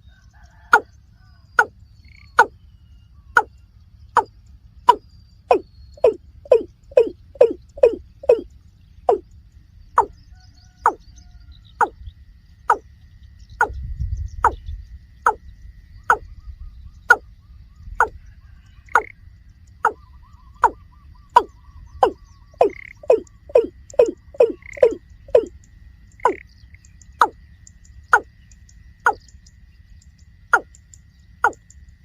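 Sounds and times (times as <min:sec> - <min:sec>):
bird calling hollow notes: 0:01.5 - 0:02.7, 0:03.3 - 0:11.0, 0:12.7 - 0:12.9, 0:13.5 - 0:18.2, 0:18.8 - 0:19.2, 0:19.8 - 0:29.4, 0:30.4 - 0:31.8.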